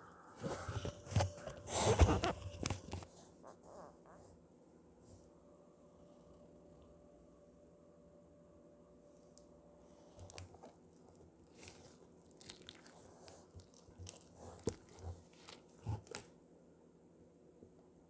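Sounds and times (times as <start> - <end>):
slime crackling and popping: 11.5 - 16.3.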